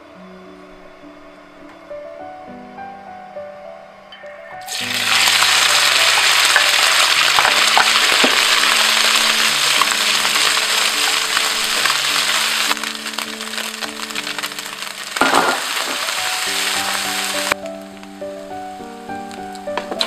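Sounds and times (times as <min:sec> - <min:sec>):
food sizzling in hot oil: 0:04.6 - 0:17.6.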